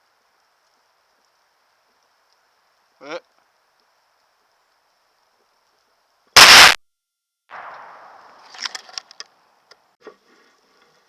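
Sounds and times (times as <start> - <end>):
gunshot: 6.4 - 6.8, 7.5 - 8.7
rumble: 7.5 - 8.8
small clicks and knocks: 8.4 - 9.8.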